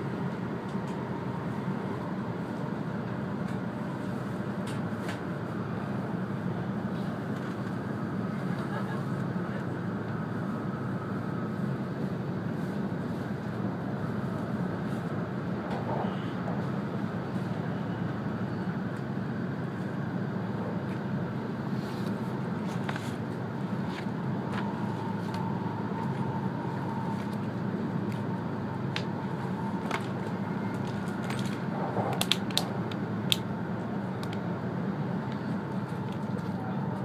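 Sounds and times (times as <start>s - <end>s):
train wheels rumbling on track: 0.0s - 37.0s.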